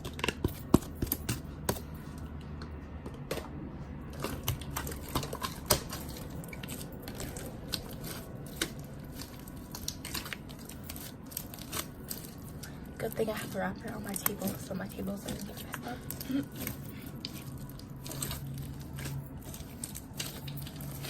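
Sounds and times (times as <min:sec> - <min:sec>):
slime clicking and popping: 0:04.2 - 0:12.7.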